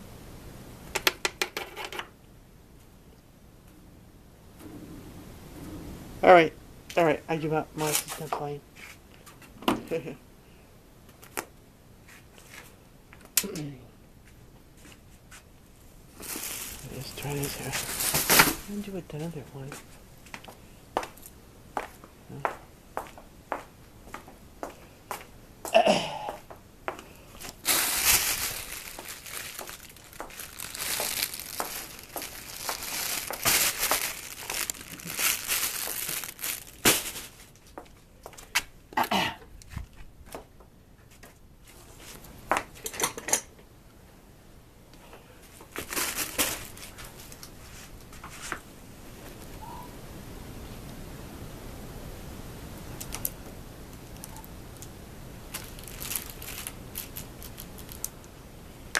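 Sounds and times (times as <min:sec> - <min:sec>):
plastic wrapper crinkling: 0:16.2 - 0:19.4, 0:27.4 - 0:37.7, 0:45.7 - 0:47.6, 0:55.5 - 0:58.2.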